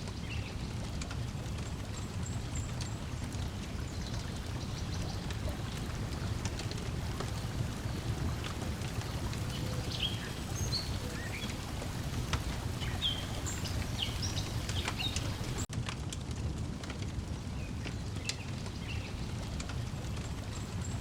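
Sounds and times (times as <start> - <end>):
water lapping: 0.0 - 15.7
wood fire crackling: 0.0 - 21.0.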